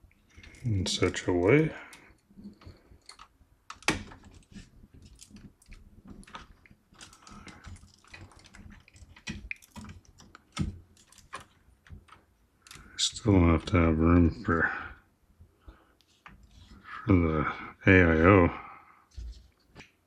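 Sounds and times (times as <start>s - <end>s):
cables clicking and rustling: 0.0s - 14.6s, 15.6s - 17.1s.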